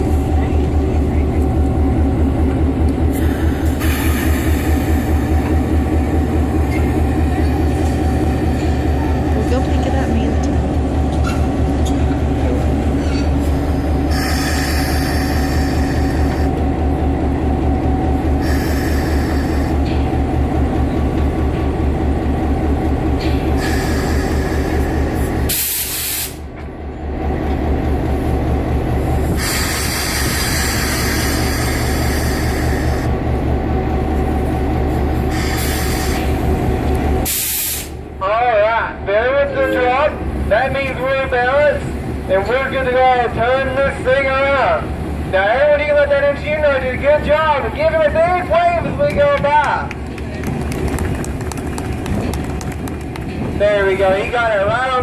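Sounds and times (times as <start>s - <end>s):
diesel locomotive throbbing: 0.0s - 55.0s
air brakes hissing: 3.1s - 5.3s, 13.7s - 16.5s, 18.4s - 19.8s, 23.6s - 26.5s, 29.3s - 33.1s, 35.3s - 36.4s, 37.2s - 38.0s.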